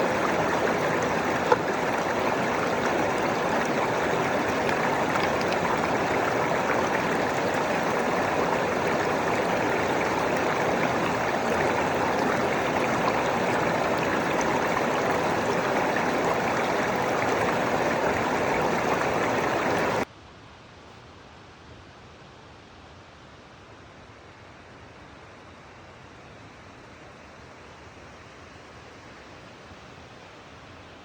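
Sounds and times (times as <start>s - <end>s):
water rushing: 0.0s - 20.1s.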